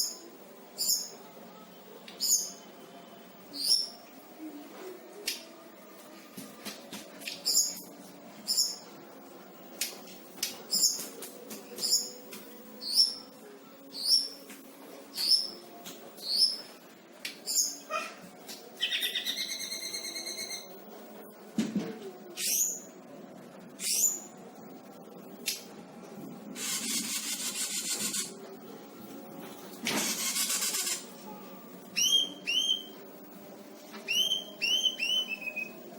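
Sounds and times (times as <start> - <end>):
buzzy bird trill: 26.6 - 28.3, 30.1 - 31.1.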